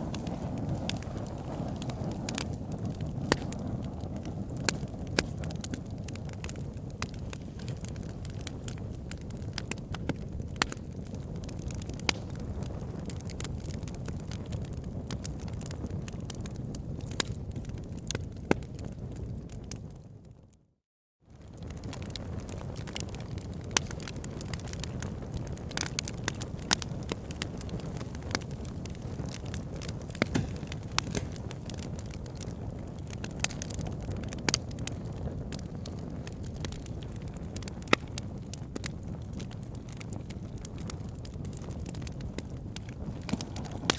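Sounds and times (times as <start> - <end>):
fire crackling and popping: 0.0 - 20.6, 21.3 - 43.9
low rumble of flames: 0.0 - 43.9.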